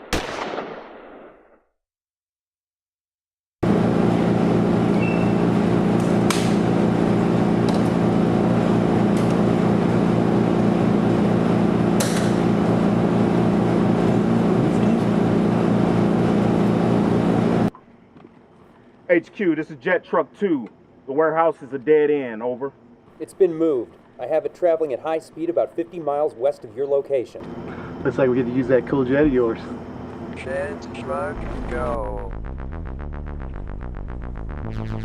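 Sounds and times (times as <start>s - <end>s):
mechanical drone: 3.6s - 17.7s, 27.4s - 35.0s.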